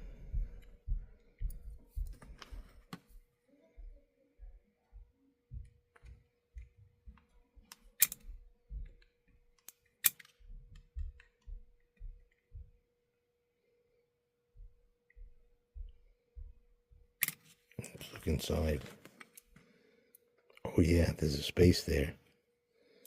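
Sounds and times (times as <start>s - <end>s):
faint steady hum: 0.0s - 23.0s
small tools clicking and tapping: 5.9s - 12.4s.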